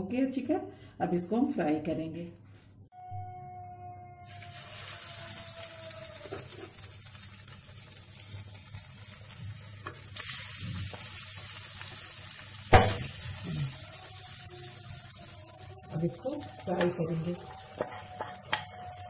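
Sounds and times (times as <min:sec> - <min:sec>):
chicken sizzling in hot oil: 0:04.2 - 0:19.0.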